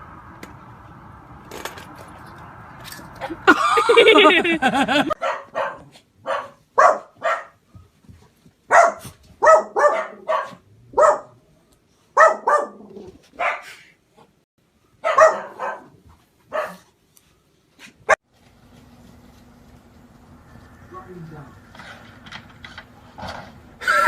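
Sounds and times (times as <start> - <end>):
dog barking: 5.1 - 7.6, 8.7 - 11.4, 12.2 - 13.8, 15.0 - 16.9.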